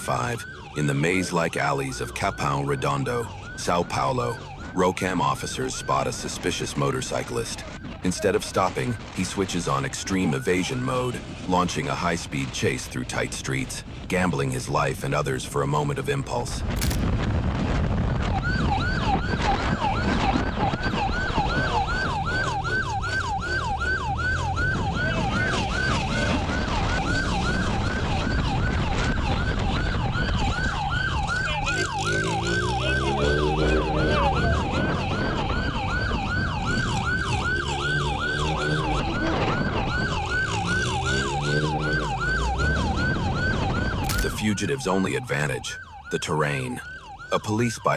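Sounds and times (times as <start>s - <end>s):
police siren yelping: 0.0s - 6.3s, 18.2s - 47.9s.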